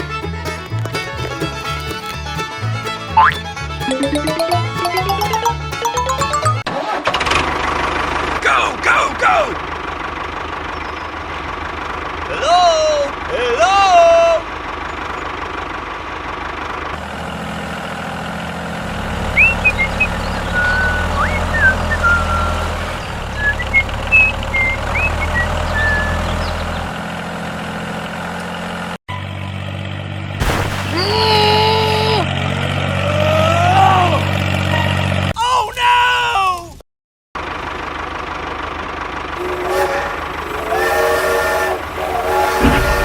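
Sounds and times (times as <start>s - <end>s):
vehicle engine droning: 0.0s - 3.8s, 7.5s - 30.4s, 31.1s - 35.3s, 37.4s - 43.0s
sliding pitched tones: 39.4s - 40.8s.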